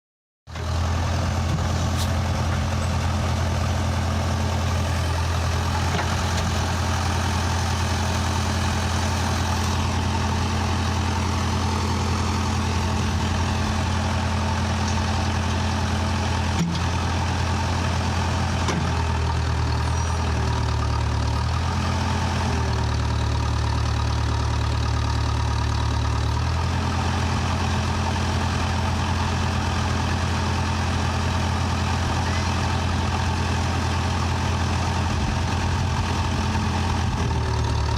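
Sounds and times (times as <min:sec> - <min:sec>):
backhoe diesel engine running: 0:00.5 - 0:37.9.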